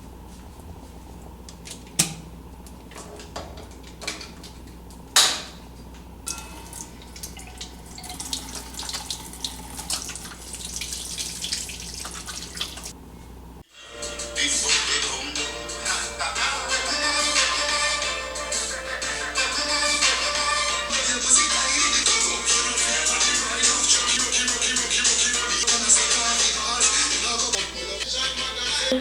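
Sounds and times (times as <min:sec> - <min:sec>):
tap running into a sink: 0:06.3 - 0:12.9.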